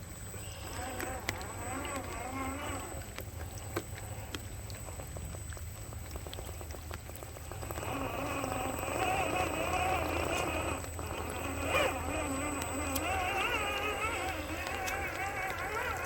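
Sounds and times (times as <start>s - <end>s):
water splashing and trickling: 0.0s - 16.0s
electric motor whine: 0.4s - 3.2s, 7.6s - 16.0s.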